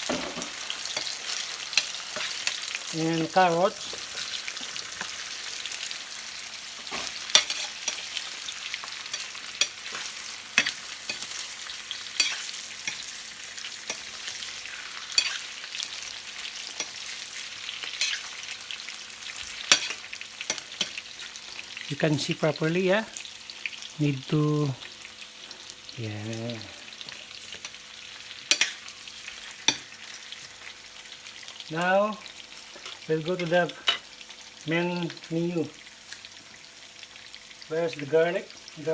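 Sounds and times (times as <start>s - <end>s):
vegetables being stirred knocks: 0.0s - 5.2s, 6.8s - 13.2s
vegetables sizzling in oil: 0.0s - 38.9s.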